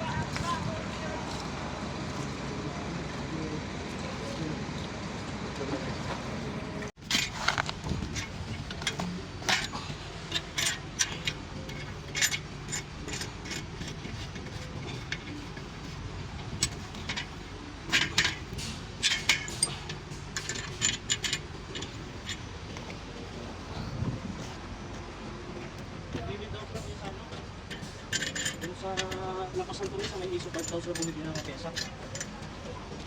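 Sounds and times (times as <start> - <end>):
steady low hum: 0.0 - 33.0
metal tools clinking: 7.0 - 24.6, 25.6 - 33.0.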